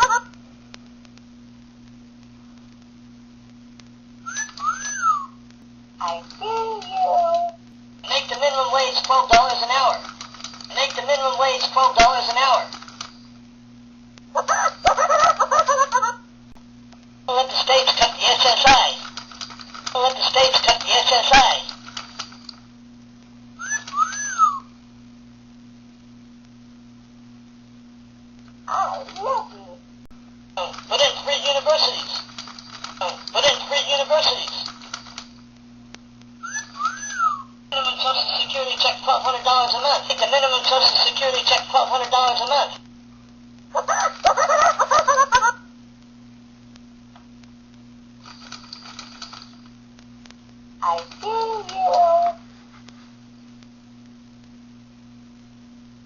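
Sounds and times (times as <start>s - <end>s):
low electrical hum: 0.0s - 56.0s
parrot whistling: 4.2s - 5.4s, 23.6s - 24.7s, 36.4s - 37.5s.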